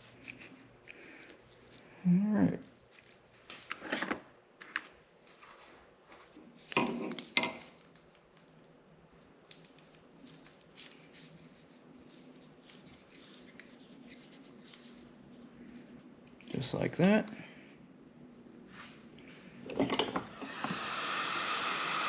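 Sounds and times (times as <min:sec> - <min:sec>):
faint steady hum: 0:00.0 - 0:22.0
tools clattering on workbench: 0:19.7 - 0:20.3.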